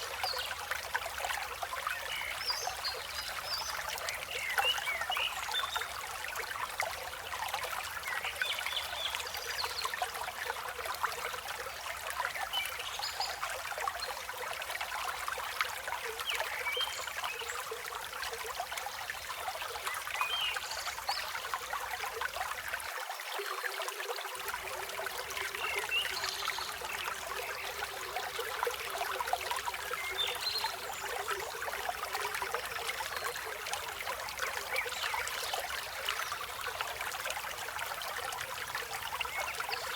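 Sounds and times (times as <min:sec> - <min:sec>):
river flowing: 0:21.4 - 0:39.9.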